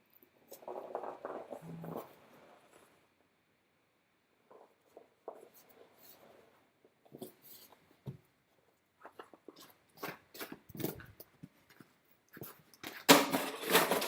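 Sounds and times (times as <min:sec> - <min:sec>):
light scuffs taps and knocks: 0:07.0 - 0:08.3.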